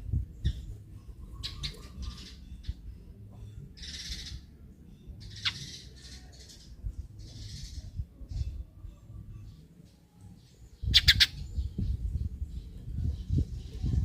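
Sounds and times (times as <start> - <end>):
sparrow chirping: 0.0 - 14.0
sparrow harsh chatter: 3.8 - 4.5, 5.2 - 8.7, 10.7 - 14.0.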